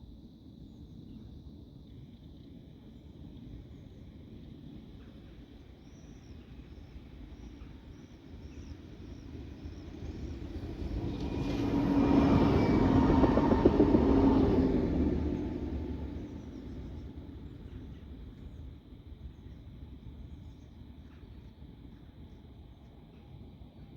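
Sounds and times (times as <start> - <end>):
tram rolling on rails: 6.9 - 19.5.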